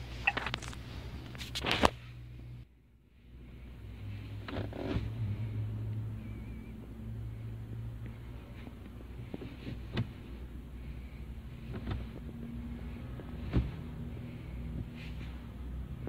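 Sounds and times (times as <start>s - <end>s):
van engine idling: 3.2s - 16.0s.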